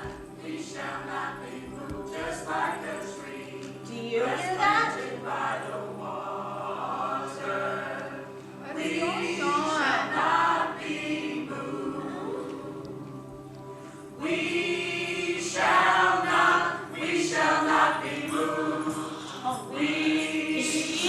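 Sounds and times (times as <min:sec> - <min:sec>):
group singing held notes: 0:00.0 - 0:21.0.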